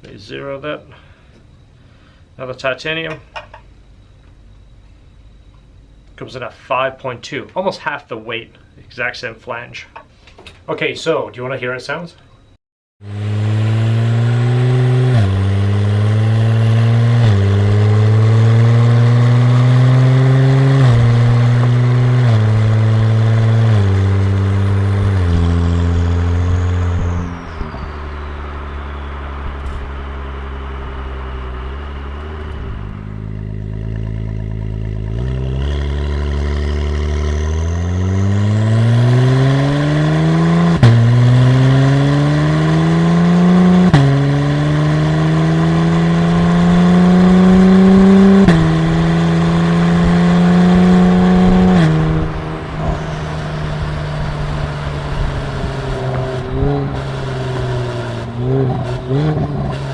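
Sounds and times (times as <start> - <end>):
car engine accelerating through gears: 13.0 - 59.9.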